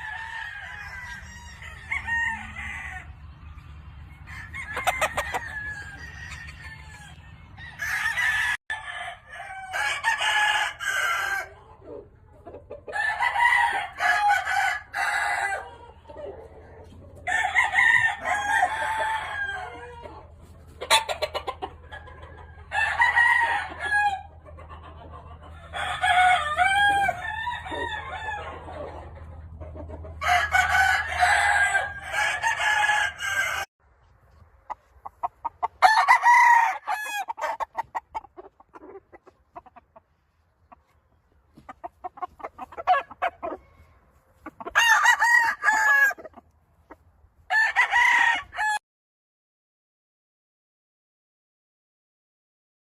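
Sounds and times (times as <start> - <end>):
roosters crowing: 0.0 - 33.7, 35.0 - 39.8, 41.5 - 48.8
chickens clucking: 11.2 - 13.1, 14.6 - 22.8, 24.0 - 32.2, 33.9 - 35.9, 36.9 - 47.4.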